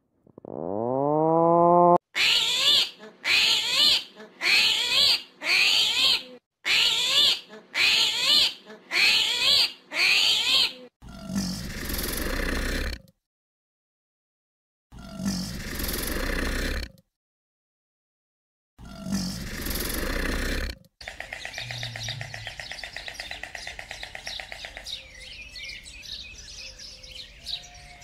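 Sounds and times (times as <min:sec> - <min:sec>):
armadillo calls: 0:19.5 - 0:28.0.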